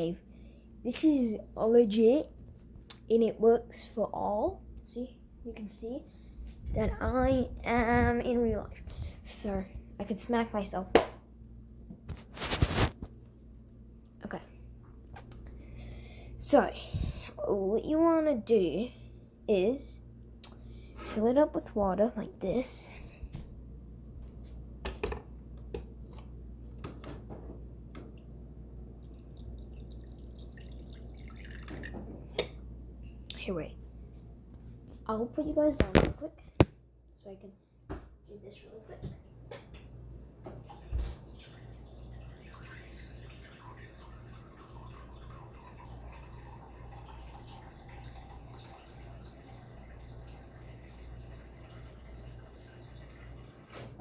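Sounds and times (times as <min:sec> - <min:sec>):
running water stream: 0:29.0 - 0:32.0
water dripping into bowl: 0:29.0 - 0:32.0
tap water running into bowl: 0:29.0 - 0:32.1, 0:40.5 - 0:53.9.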